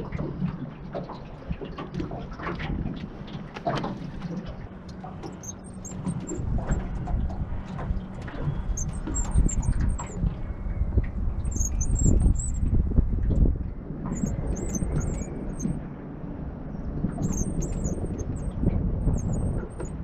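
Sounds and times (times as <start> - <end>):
wind rumbling on microphone: 0.0 - 20.0
small birds chirping: 5.2 - 6.4, 11.4 - 12.6, 14.1 - 15.8, 17.2 - 20.0.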